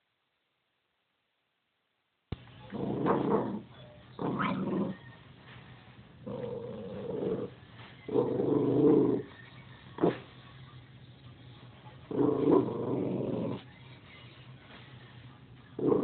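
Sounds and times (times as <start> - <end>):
puppy barking growly: 2.7 - 5.0, 6.2 - 9.3, 10.0 - 10.3, 12.1 - 13.6, 15.8 - 16.0.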